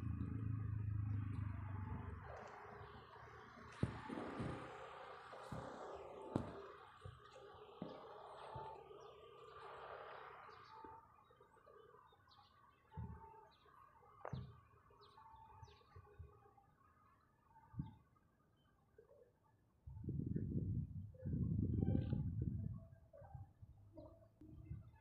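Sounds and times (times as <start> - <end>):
birds chirping: 2.1 - 16.3.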